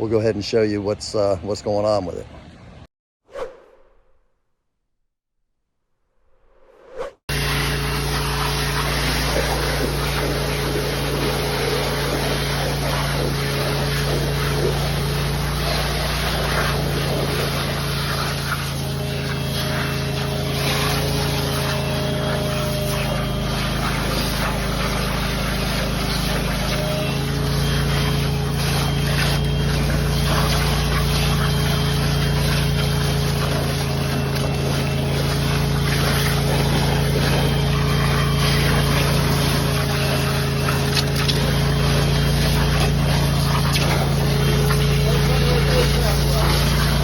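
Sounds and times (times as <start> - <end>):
vacuum excavator drone: 7.3 - 47.0.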